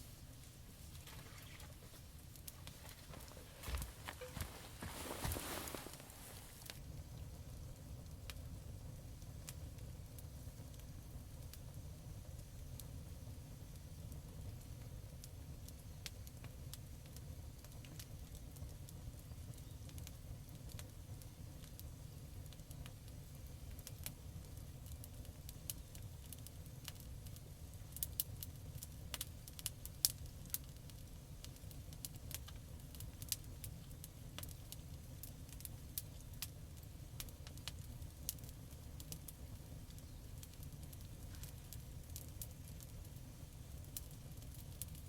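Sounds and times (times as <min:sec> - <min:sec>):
campfire crackling: 0:00.0 - 0:45.0.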